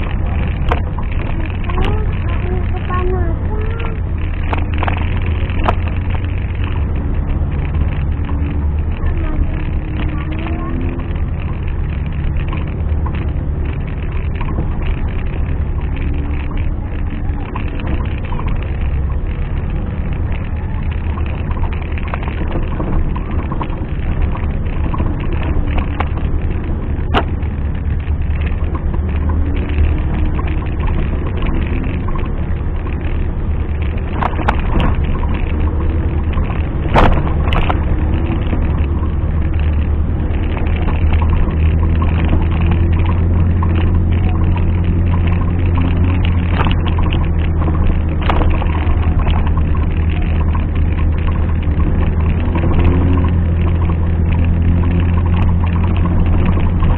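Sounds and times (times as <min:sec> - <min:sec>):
engine running: 0:00.0 - 0:56.9.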